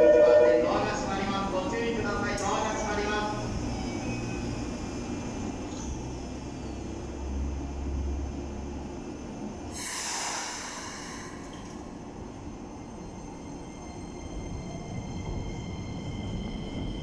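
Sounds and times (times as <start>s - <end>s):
low train equipment hum: 0.0s - 17.0s
compressed air hiss: 9.7s - 11.5s.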